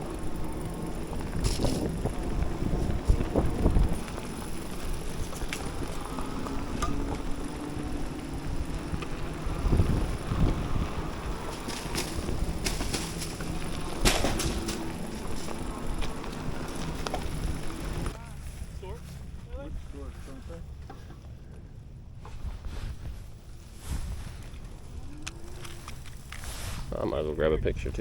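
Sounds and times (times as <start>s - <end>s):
bike knocks and rattles: 0.0s - 18.2s
bike tyre and drivetrain rumble: 0.0s - 28.0s
wind on microphone: 1.1s - 18.7s.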